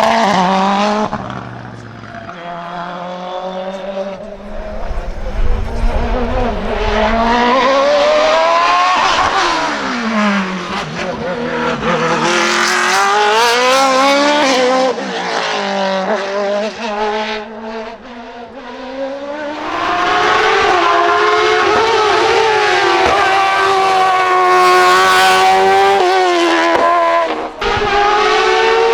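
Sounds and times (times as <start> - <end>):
race car engine at high revs: 10.2 - 17.4, 19.2 - 28.9.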